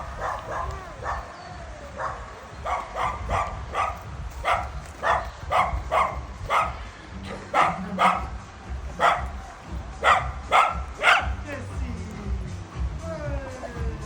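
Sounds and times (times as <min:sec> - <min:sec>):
dog barking: 0:00.0 - 0:08.4, 0:09.0 - 0:09.4, 0:10.0 - 0:11.4.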